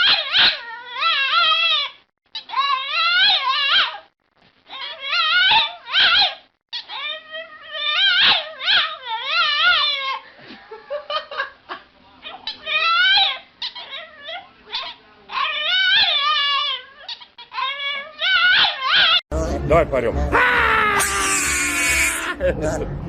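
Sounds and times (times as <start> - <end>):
dog howling: 0.0 - 1.9, 20.3 - 22.4.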